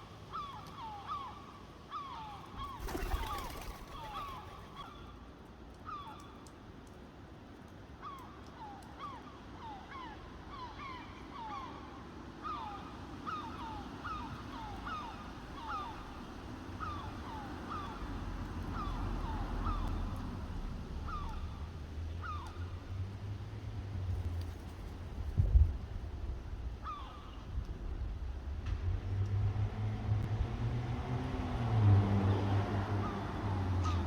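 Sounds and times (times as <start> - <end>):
young crows calling: 33.0 - 34.0.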